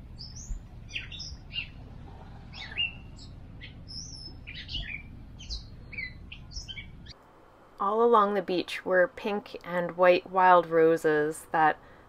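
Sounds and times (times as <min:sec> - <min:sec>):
songbirds chirping: 0:00.0 - 0:07.2
low background rumble: 0:00.0 - 0:09.2.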